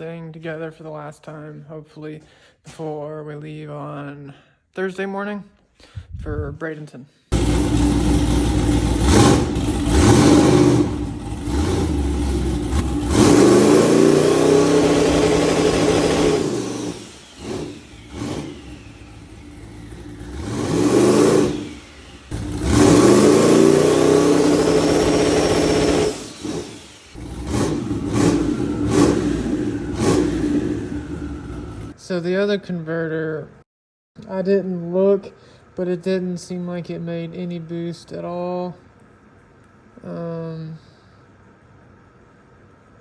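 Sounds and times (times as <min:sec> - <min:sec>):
turbocharged engine revving: 0:07.3 - 0:32.0.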